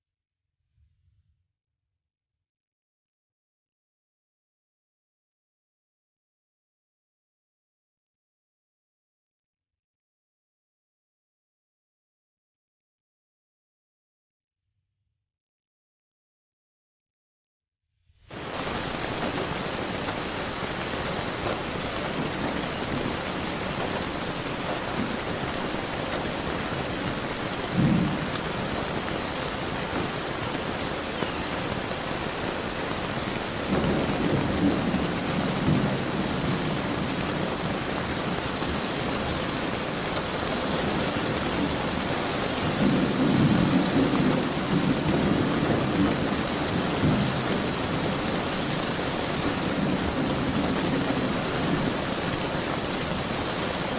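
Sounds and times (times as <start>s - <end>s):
steady rain: 18.3s - 53.9s
low thunder rumbles: 18.6s - 39.6s, 42.6s - 53.0s
sharp thunder clap: 27.7s - 29.1s, 33.6s - 37.4s.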